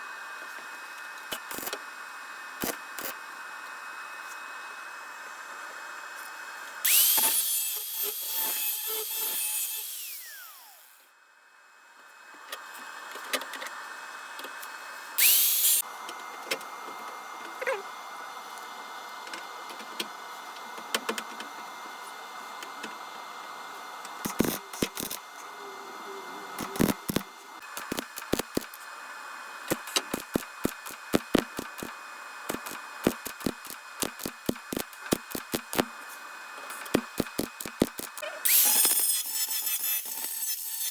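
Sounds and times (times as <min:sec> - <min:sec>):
power tool on metal: 0:01.3 - 0:01.8, 0:02.6 - 0:03.2, 0:06.3 - 0:11.1, 0:14.6 - 0:15.9, 0:22.6 - 0:40.9.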